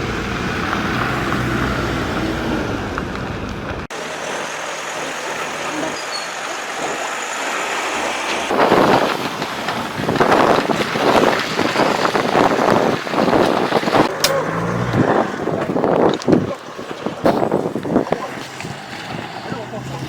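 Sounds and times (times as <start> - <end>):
vehicle moving: 0.0 - 20.0
wind buffeting microphone: 8.4 - 19.8.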